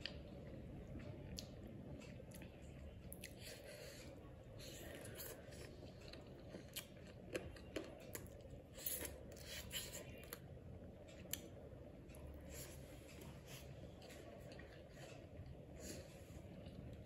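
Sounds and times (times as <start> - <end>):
person chewing with wet smacks: 0.0 - 17.0.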